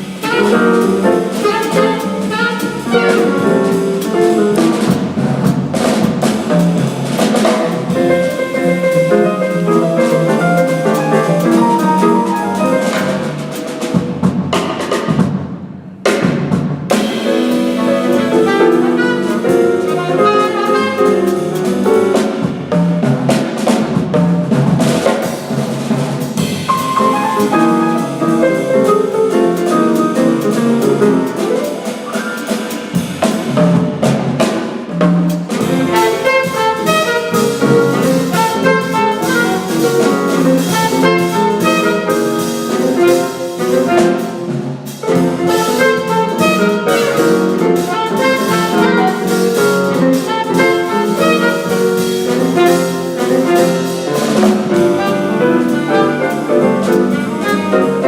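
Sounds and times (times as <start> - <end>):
drum kit: 0.0 - 58.0
piano: 0.0 - 58.0
saxophone lead: 0.2 - 4.4, 17.6 - 21.5, 35.6 - 44.5, 45.4 - 58.0.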